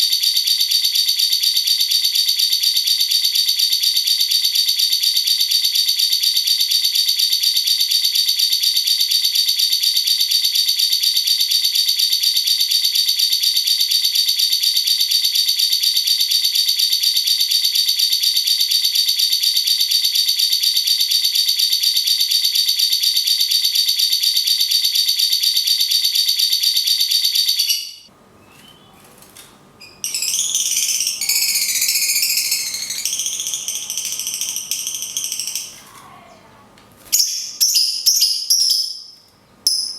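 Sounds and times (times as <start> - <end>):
high-pitched chattering bird trill: 29.8 - 35.8, 37.1 - 39.1.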